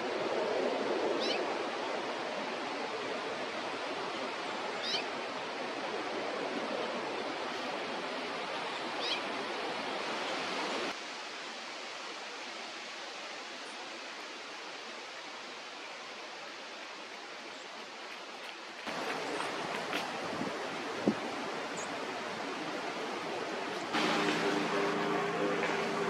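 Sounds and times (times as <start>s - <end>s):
steady rushing noise: 18.8s - 26.0s.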